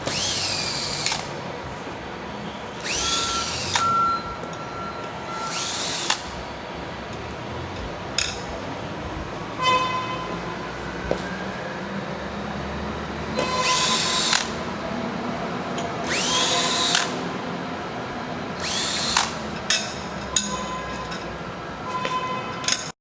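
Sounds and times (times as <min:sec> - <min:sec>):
power drill whining: 0:00.0 - 0:01.3, 0:02.8 - 0:04.0, 0:05.3 - 0:06.3, 0:13.4 - 0:14.6, 0:16.0 - 0:17.2, 0:18.6 - 0:19.4.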